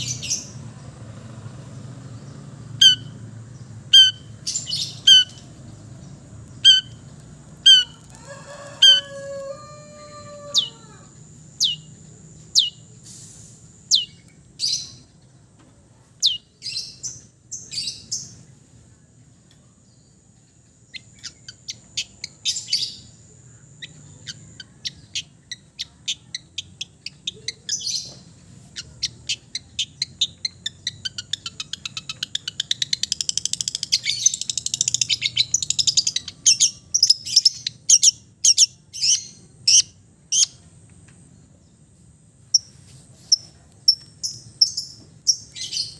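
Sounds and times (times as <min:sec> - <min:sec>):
shrike singing: 0:02.8 - 0:12.9.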